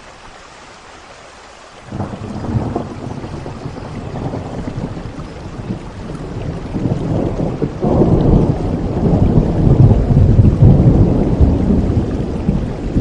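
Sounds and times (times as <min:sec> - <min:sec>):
steady rain: 0:00.0 - 0:13.0
rumble of thunder: 0:01.9 - 0:13.0.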